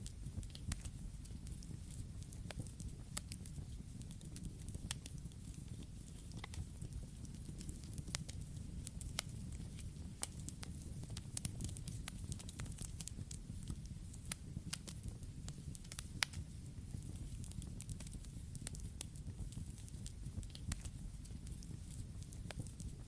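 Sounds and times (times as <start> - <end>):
burning wood crackling and popping: 0.0 - 23.0
campfire flames rumbling: 0.0 - 23.0.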